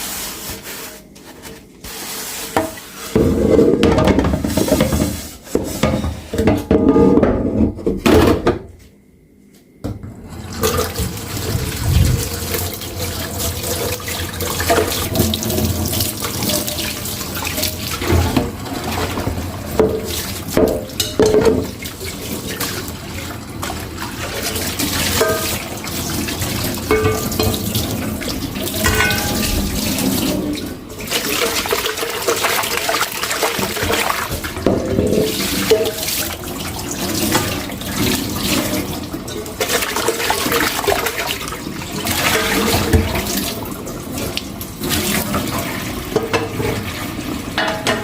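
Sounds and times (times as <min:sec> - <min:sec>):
dishes clinking and knocking: 0:02.6 - 0:08.6, 0:17.6 - 0:21.8, 0:25.1 - 0:25.7, 0:26.8 - 0:27.8, 0:28.7 - 0:30.6, 0:46.1 - 0:46.8, 0:47.6 - 0:48.0.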